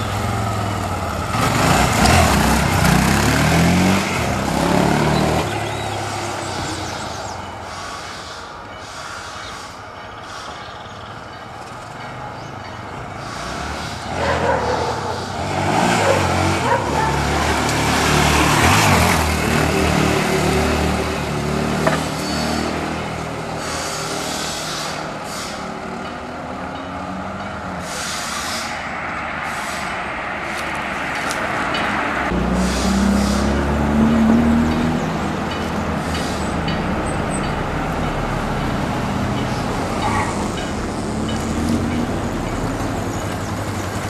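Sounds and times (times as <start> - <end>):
motorcycle engine revving: 0.0 - 6.0, 32.3 - 35.2.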